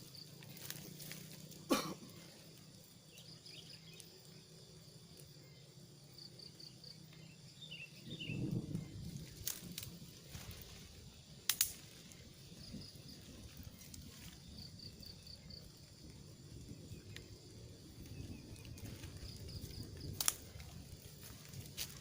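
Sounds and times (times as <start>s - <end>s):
faint outdoor ambience: 0.0s - 22.0s
sharp clicks: 11.5s - 11.8s.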